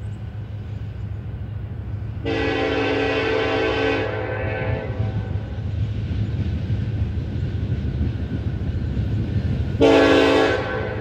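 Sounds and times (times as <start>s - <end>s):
diesel locomotives rumbling: 0.0s - 11.0s.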